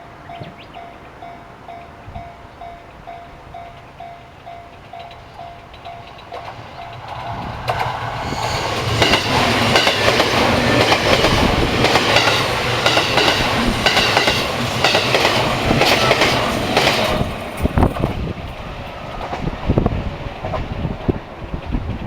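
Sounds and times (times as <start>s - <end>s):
train wheels clattering over rails: 4.7s - 22.0s.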